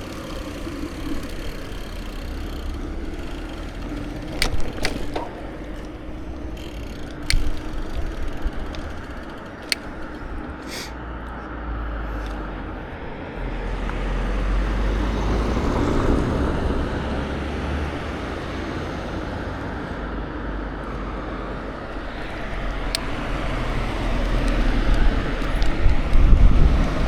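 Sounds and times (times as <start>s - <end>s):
bicycle tyres rolling: 0.0s - 11.4s, 21.6s - 27.0s
light ticks: 0.0s - 11.5s
wind rushing over microphone: 22.0s - 27.0s.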